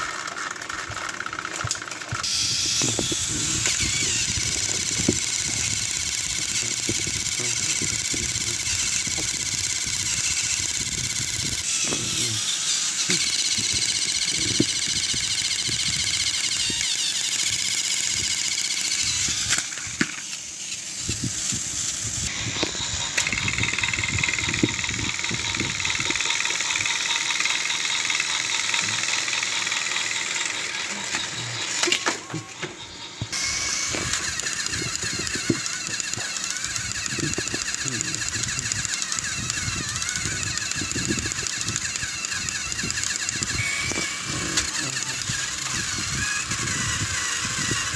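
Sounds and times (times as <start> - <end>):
toy train motors whirring: 0.0 - 47.9
plastic clicks and rattles: 33.9 - 47.9.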